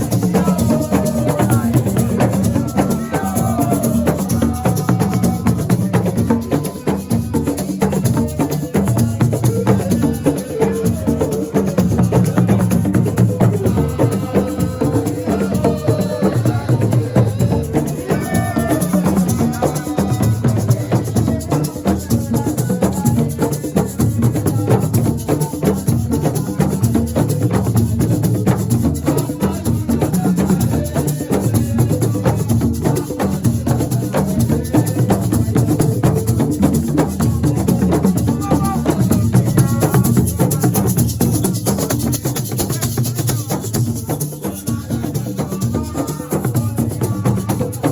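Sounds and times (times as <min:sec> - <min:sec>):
hand drum percussion: 0:00.0 - 0:47.9.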